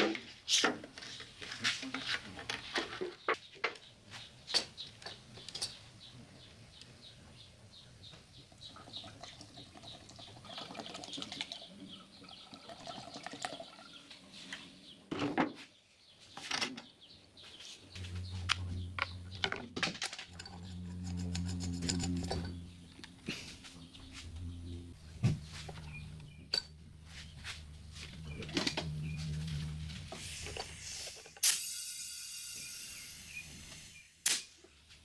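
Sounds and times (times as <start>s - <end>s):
low steady hum: 17.9s - 31.2s.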